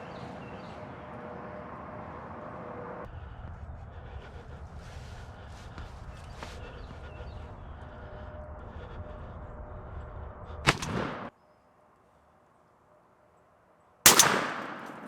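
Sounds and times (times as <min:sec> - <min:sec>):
gunshot: 0:10.7 - 0:11.3, 0:14.1 - 0:15.0.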